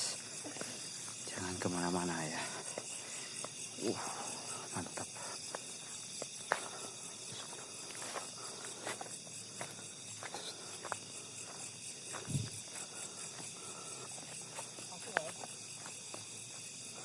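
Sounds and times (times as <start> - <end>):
insect chorus chirring: 0.0 - 17.0
footsteps on leaves and twigs: 5.0 - 17.0.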